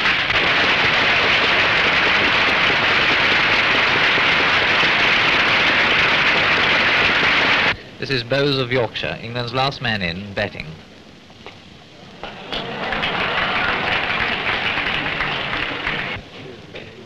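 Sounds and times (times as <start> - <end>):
crowd applauding: 0.0 - 7.8, 12.2 - 16.2.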